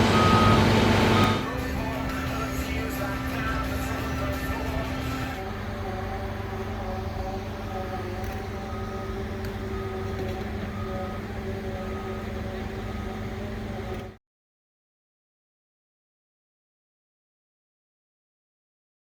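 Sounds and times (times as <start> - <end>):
warning beeper: 0.0 - 1.5
diesel engine running: 0.0 - 14.2.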